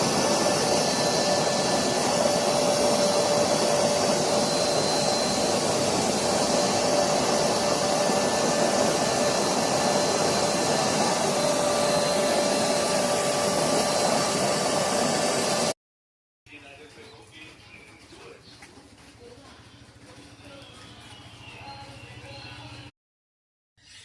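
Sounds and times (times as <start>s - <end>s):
furnace blower rushing: 0.0s - 15.8s.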